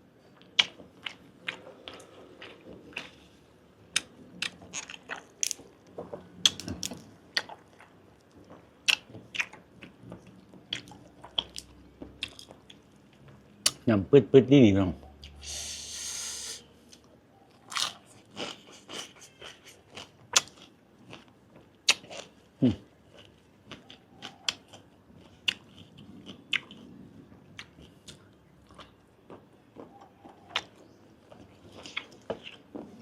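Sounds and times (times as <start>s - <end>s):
chewing with wet mouth clicks: 0.4s - 3.2s, 7.3s - 12.9s, 17.0s - 22.3s, 23.1s - 33.0s.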